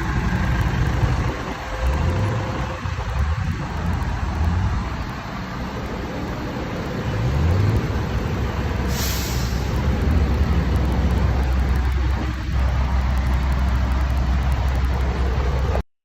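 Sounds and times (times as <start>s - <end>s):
tractor engines running: 0.0s - 15.9s
brief hiss: 8.8s - 9.9s.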